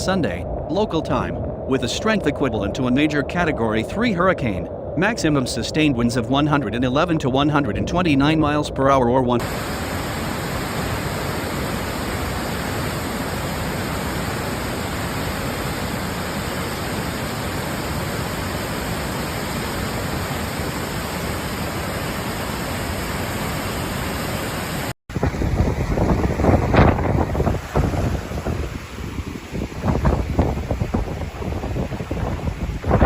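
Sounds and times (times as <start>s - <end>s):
swollen river rushing: 9.4s - 33.0s.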